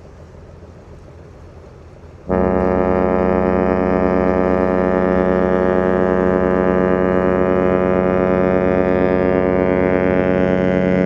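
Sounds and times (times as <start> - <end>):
ship horn long blast: 2.2 - 11.0.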